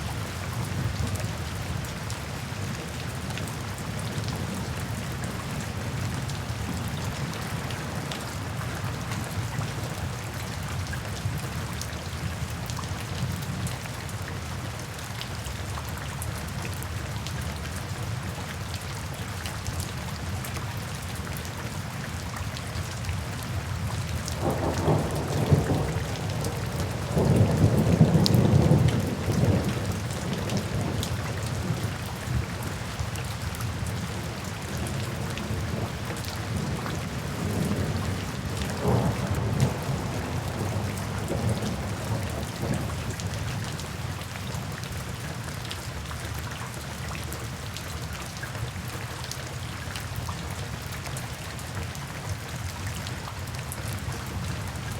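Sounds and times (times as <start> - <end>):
rain falling: 0.0 - 54.9
thunder rumbling: 24.4 - 31.7, 36.5 - 43.2.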